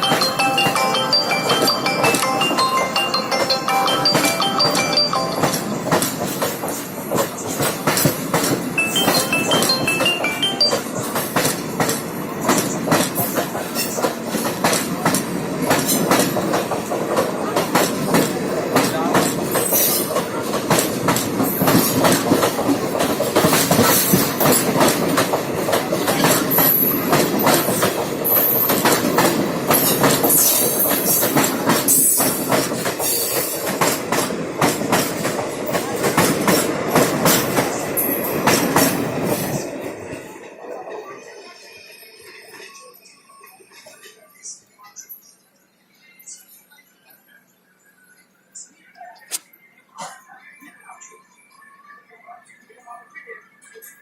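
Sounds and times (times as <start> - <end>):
train wheels clattering: 0.0 - 39.6.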